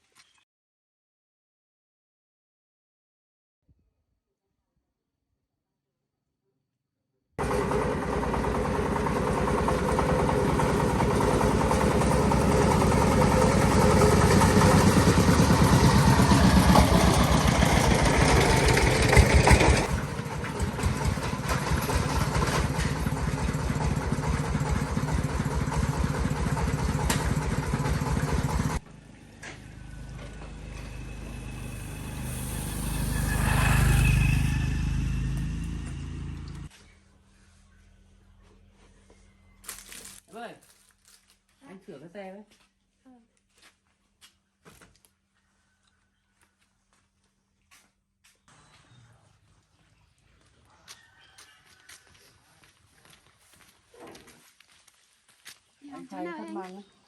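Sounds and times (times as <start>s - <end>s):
tractor engine chugging: 7.4s - 34.2s
another engine: 7.4s - 36.7s.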